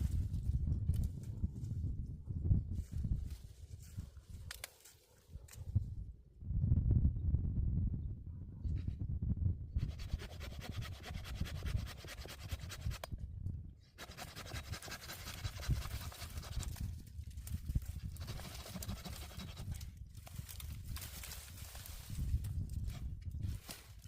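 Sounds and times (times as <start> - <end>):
hand saw cutting wood: 9.8 - 13.1, 14.0 - 16.8, 18.1 - 19.8.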